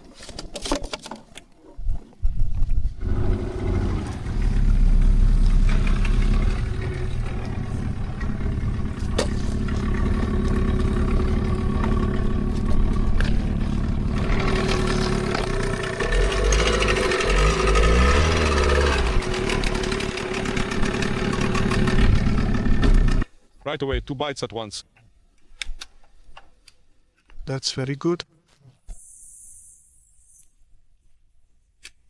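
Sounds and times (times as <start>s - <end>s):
engine running: 3.0s - 23.3s.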